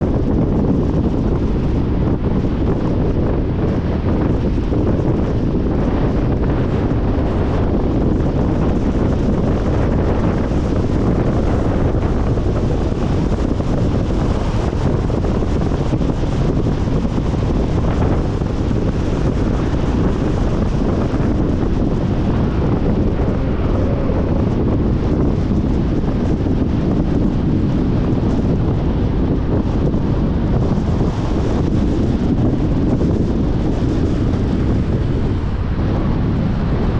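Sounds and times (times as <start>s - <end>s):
car driving rumble: 0.0s - 36.9s.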